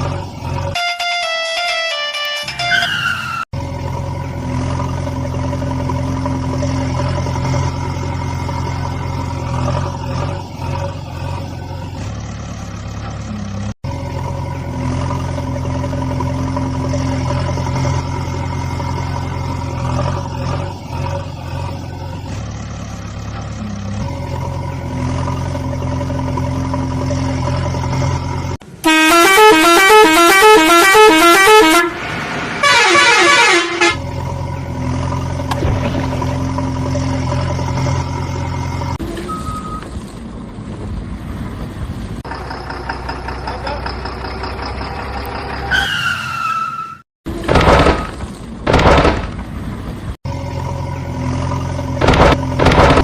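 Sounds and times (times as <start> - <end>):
truck engine drone: 0.0 - 53.0
held horn-like tones: 0.7 - 3.4, 28.8 - 34.1.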